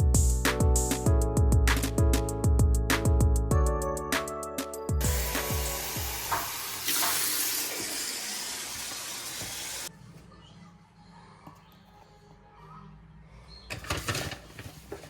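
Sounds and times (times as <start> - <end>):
music with heavy drum beats: 0.0 - 4.3, 4.9 - 6.9.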